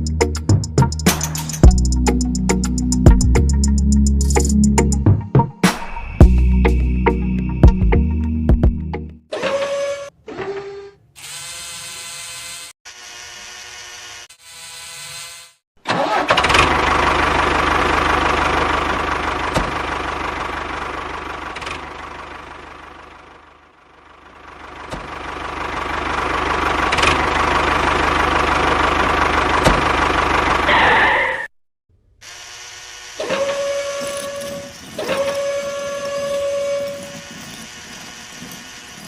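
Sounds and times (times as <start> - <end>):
engine-like mechanical running: 15.9 - 31.3, 32.3 - 39.0.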